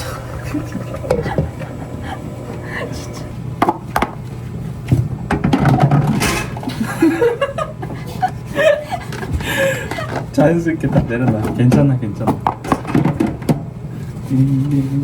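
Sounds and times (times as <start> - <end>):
low voices: 0.0 - 3.6, 14.2 - 15.0.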